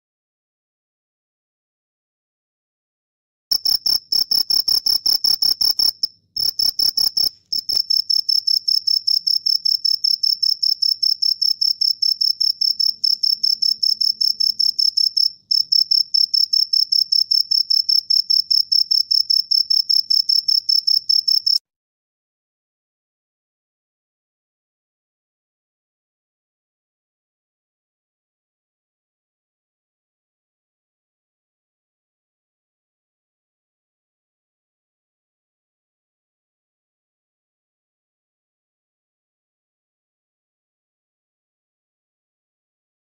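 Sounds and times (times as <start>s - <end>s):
cricket chirping: 3.5s - 21.6s.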